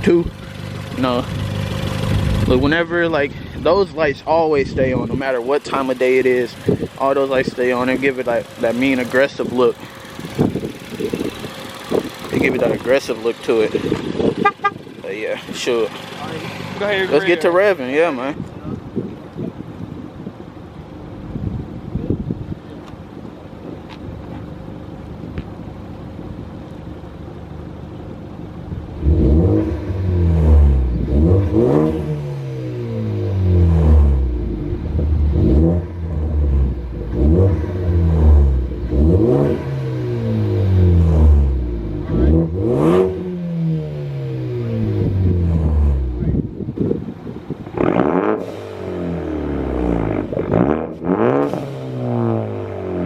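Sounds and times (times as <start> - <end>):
car engine idling and revving: 0.0 - 53.0.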